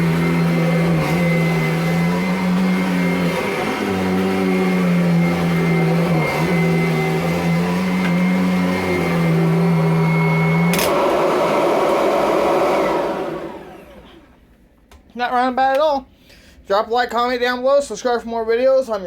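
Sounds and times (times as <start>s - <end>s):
vacuum cleaner running: 0.0s - 14.4s.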